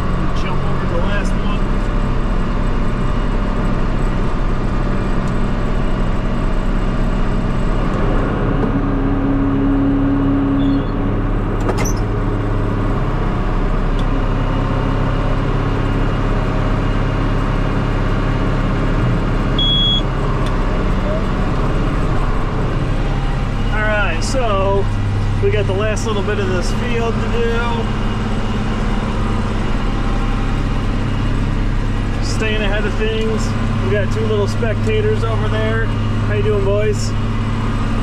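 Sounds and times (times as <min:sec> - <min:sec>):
tractor engine under load: 0:00.0 - 0:38.0.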